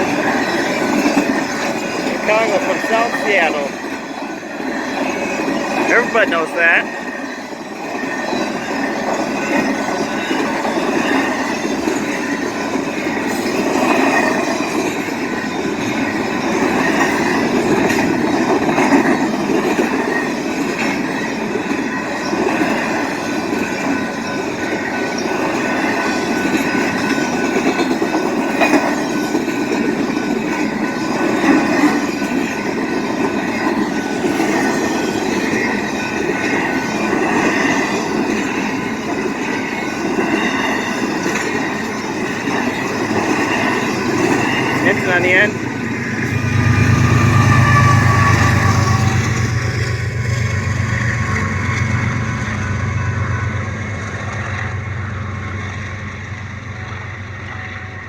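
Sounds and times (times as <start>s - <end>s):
clickety-clack over rail joints: 0.0s - 58.0s
train wheels rumbling on rails: 0.0s - 58.0s.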